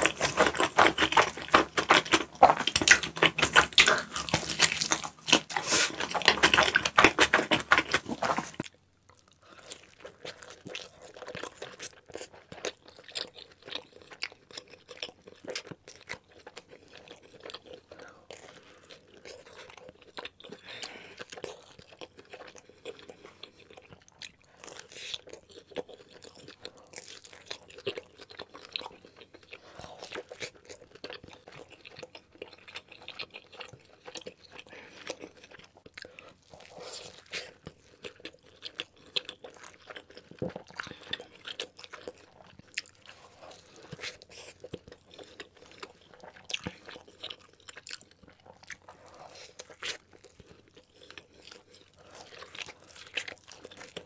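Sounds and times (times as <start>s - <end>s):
crunchy chewing clicks: 0.0s - 20.6s.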